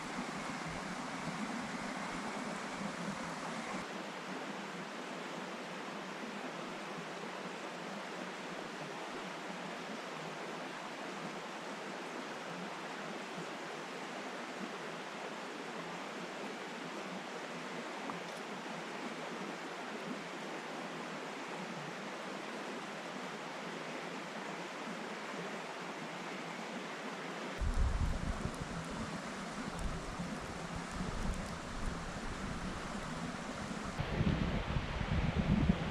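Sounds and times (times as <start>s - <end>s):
river rushing: 0.0s - 34.1s
low uneven rumble: 27.6s - 35.9s.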